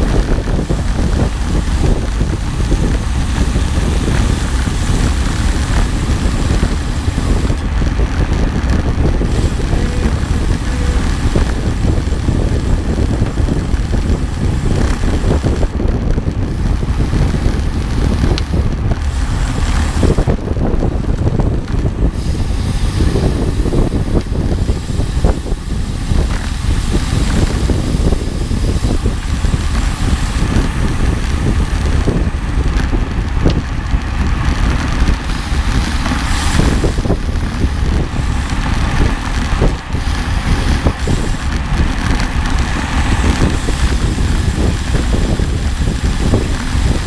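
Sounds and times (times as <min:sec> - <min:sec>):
moving vehicle running noise: 0:00.0 - 0:47.0
wind buffeting on microphone: 0:00.0 - 0:47.0.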